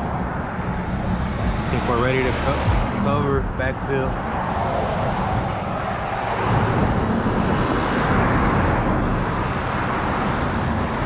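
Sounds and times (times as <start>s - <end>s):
passing motor vehicles: 0.0s - 11.0s.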